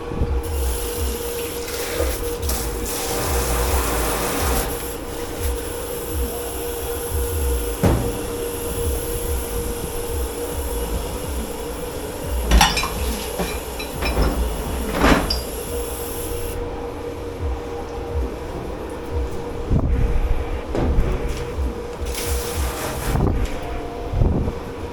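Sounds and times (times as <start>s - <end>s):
steady machine hum: 0.0s - 24.9s
dishes clattering: 10.1s - 16.6s
dishes knocking clinking and scraping: 10.7s - 16.5s.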